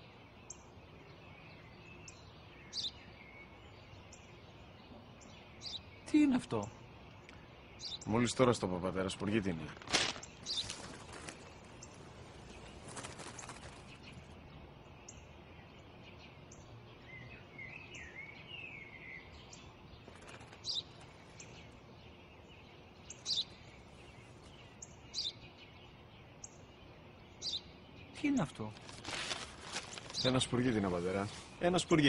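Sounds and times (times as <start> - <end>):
small birds chirping: 0.0 - 32.0
soft rustle: 9.6 - 14.2, 28.7 - 32.0.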